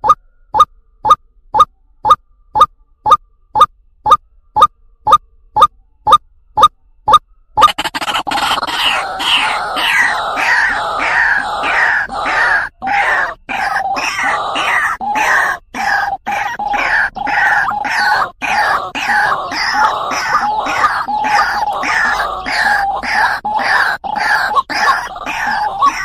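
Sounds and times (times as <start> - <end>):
waterhen croaking call: 7.6 - 26.0.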